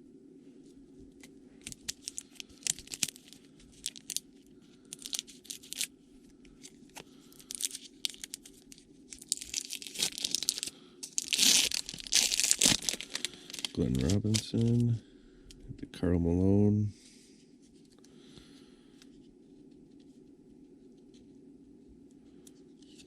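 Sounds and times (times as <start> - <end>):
wrapper tearing and crinkling: 1.6 - 4.2, 4.9 - 5.9, 6.9 - 14.9.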